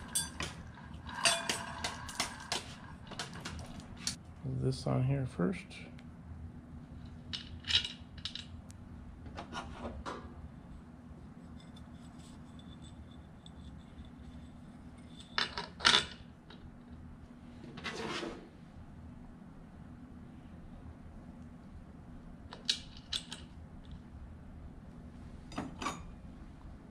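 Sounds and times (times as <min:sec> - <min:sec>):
small metal parts clinking: 0:00.0 - 0:02.5, 0:07.3 - 0:08.5
faint steady hum: 0:00.0 - 0:26.9.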